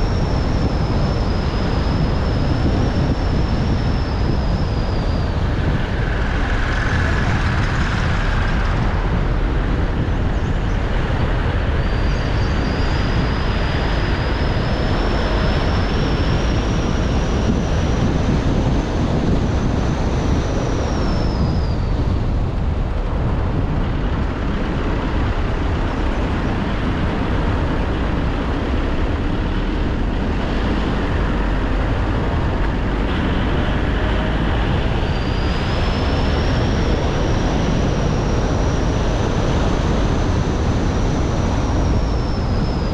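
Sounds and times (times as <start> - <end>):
car engine and tyre rumble: 0.0 - 42.9
faint high whine: 0.0 - 42.9.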